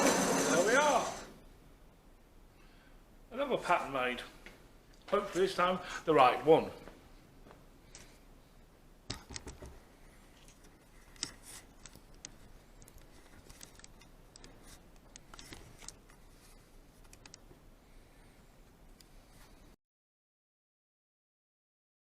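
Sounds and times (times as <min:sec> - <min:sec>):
small parts clicking: 0:09.1 - 0:09.7, 0:10.4 - 0:16.3, 0:17.0 - 0:17.5
light scrapes of small parts: 0:10.0 - 0:17.3.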